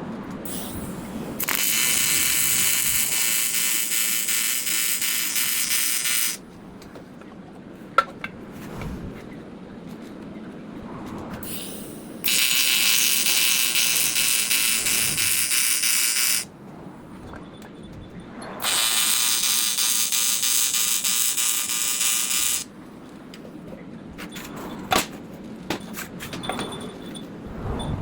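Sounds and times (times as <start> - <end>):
welding arc buzzing: 0.5 - 6.4, 11.4 - 16.5, 18.6 - 22.7.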